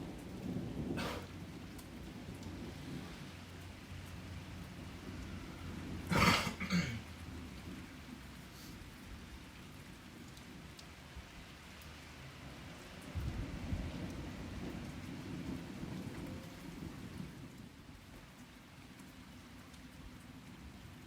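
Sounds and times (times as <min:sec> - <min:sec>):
low thunder rumble: 0:00.0 - 0:08.2, 0:13.0 - 0:17.7
steady rain falling: 0:00.0 - 0:21.0.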